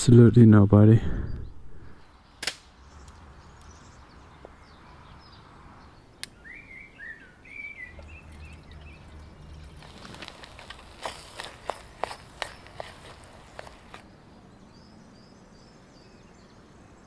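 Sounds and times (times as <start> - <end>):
small bird chirping: 6.3 - 14.0.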